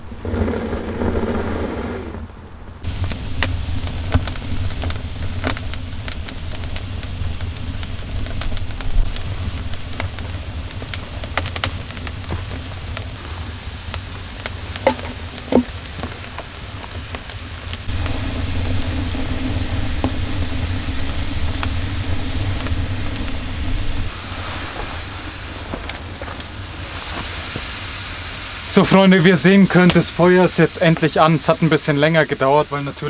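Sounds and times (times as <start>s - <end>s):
low drone: 0.0s - 16.3s, 17.4s - 27.3s
low rumble: 0.0s - 27.1s
wood fire crackling and popping: 0.0s - 28.0s, 28.7s - 32.4s.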